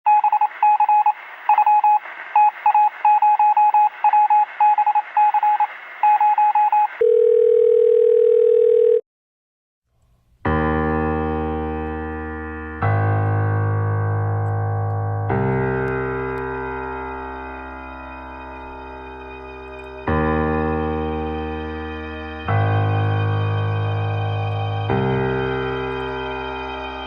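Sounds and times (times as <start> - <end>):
sustained keyboard chord: 10.5 - 27.0.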